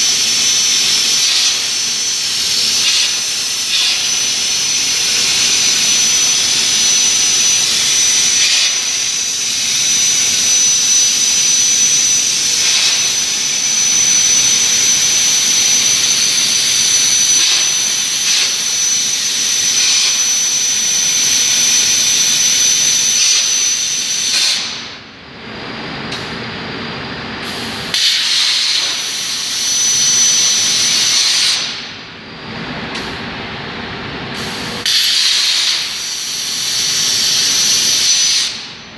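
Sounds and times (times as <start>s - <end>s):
plasma cutter hissing and whining: 0.0s - 8.9s, 24.1s - 24.9s, 27.4s - 29.8s, 30.8s - 32.0s, 34.4s - 38.7s.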